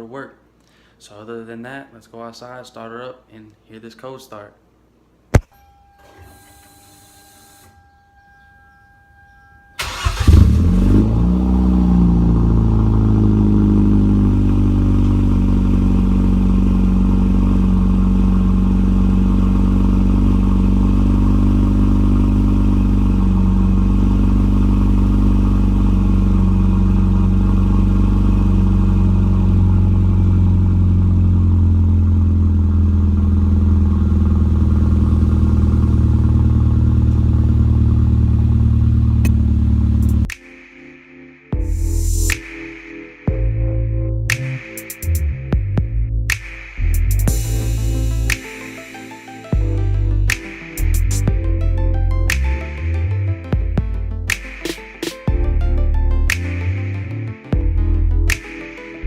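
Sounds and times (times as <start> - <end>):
faint electronic tone: 5.4 - 10.3
car engine starting and idling: 9.4 - 40.3.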